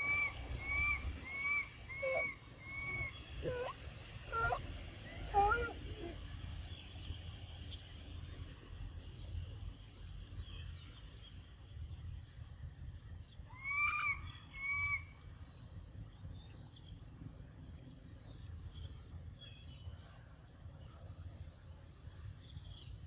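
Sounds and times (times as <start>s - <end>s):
louder rising and falling bird calls: 0.0s - 4.6s
small birds chirping: 0.0s - 23.0s.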